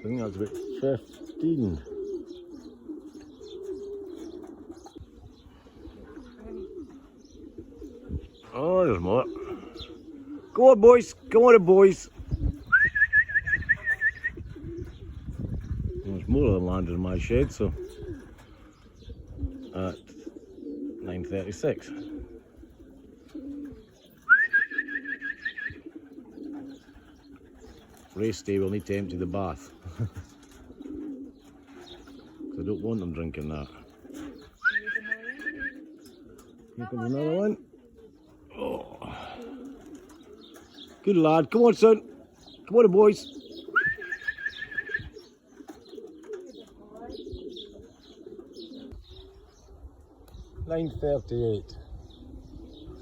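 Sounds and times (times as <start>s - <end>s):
pigeons cooing: 0.0s - 53.0s
high whistled trill: 24.3s - 25.8s.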